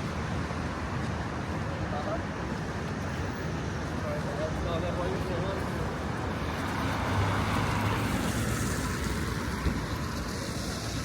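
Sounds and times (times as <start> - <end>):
passing road traffic: 0.0 - 11.0.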